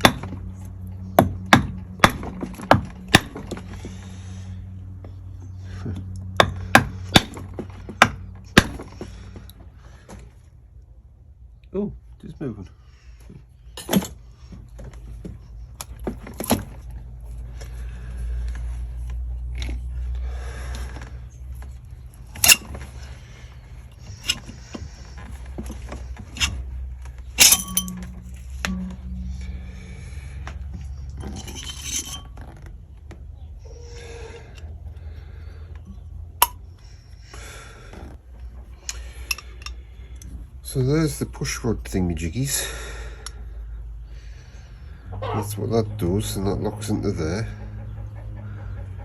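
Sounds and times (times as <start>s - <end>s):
low steady hum: 0.0s - 49.0s
low steady rumble: 0.0s - 49.0s
metal engine parts clinking: 13.7s - 17.8s, 21.4s - 32.9s, 35.8s - 36.8s, 38.5s - 40.4s.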